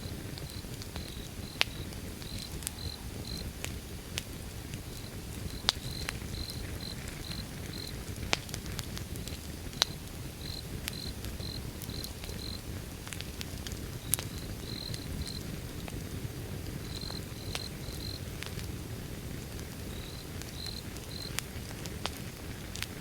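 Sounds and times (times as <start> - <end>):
cricket chirping: 0.0 - 3.5, 4.9 - 8.0, 10.4 - 12.6, 14.0 - 15.5, 16.9 - 18.2, 19.9 - 21.4
fire crackling and popping: 0.0 - 23.0
wood fire rumbling: 0.0 - 23.0.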